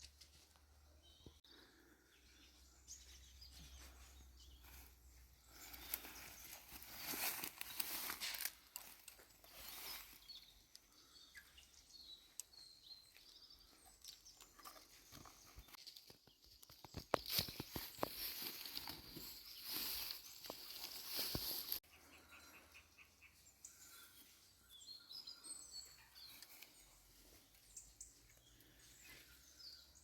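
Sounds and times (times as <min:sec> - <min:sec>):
bird chirps: 0:09.2 - 0:30.0.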